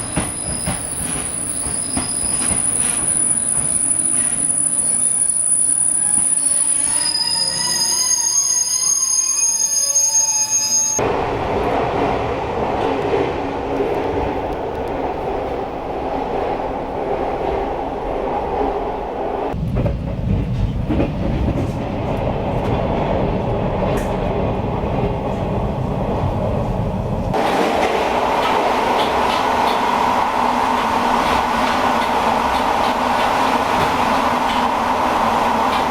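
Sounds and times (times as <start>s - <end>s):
train wheels rumbling on track: 0.0s - 5.3s, 11.0s - 35.9s
high squealing tones: 1.7s - 11.0s.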